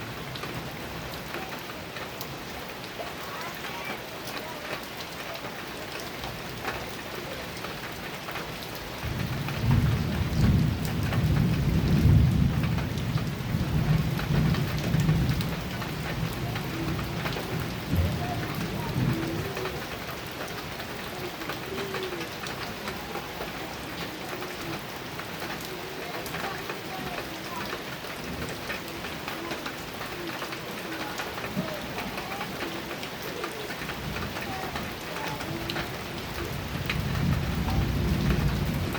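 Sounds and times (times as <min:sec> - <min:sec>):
heavy rain on a metal roof: 0:00.0 - 0:38.9
thunder rumbling: 0:09.0 - 0:20.0, 0:33.8 - 0:38.9.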